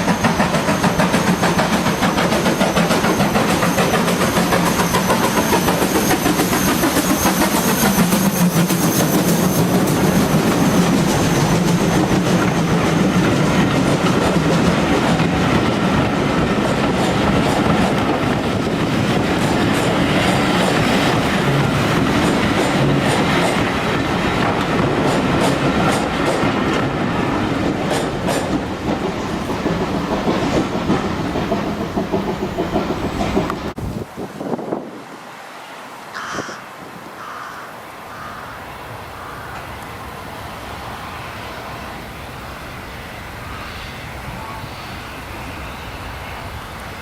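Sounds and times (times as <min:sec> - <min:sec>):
wheels clicking over rail joints: 0:00.0 - 0:33.8
steam train running: 0:00.0 - 0:36.2, 0:37.9 - 0:47.0.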